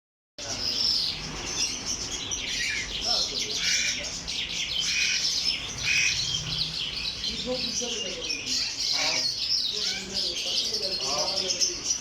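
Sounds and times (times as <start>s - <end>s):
songbirds chirping and singing: 0.4s - 12.0s.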